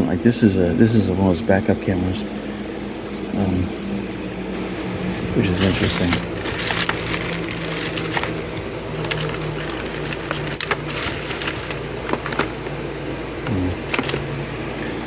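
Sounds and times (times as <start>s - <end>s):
steady low hum: 0.0s - 15.0s
small objects clicking and rustling: 5.6s - 8.4s, 9.0s - 12.8s, 13.8s - 14.3s.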